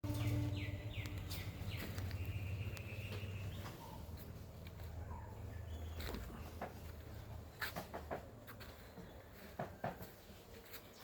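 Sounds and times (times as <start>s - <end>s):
low hum: 0.0s - 5.1s.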